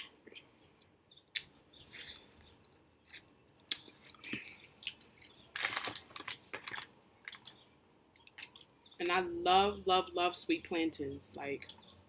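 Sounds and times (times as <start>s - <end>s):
crackly chewing: 0.2s - 9.0s
wet mouth clicks and smacks: 1.3s - 1.6s.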